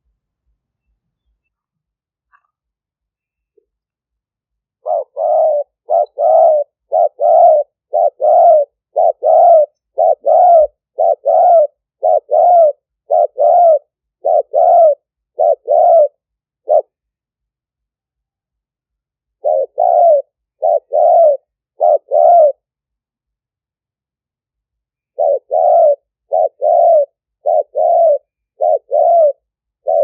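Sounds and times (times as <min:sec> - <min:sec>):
dove cooing: 0:04.8 - 0:17.0, 0:19.4 - 0:22.7, 0:25.2 - 0:30.0.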